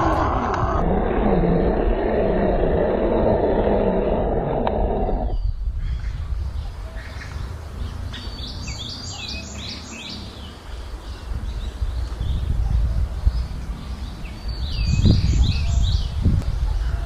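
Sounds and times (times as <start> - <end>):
steady low rumble: 0.0 - 9.1
birds chirping: 0.0 - 17.0.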